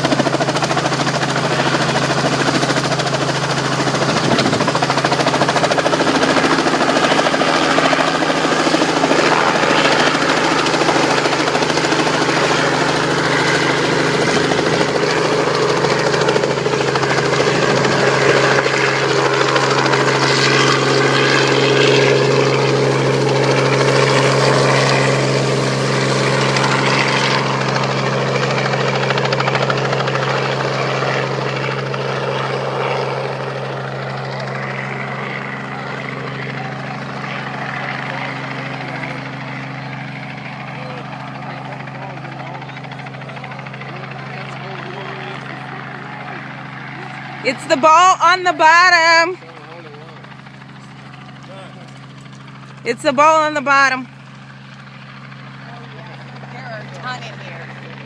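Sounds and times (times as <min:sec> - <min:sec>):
helicopter rotor and engine: 0:00.0 - 0:58.0.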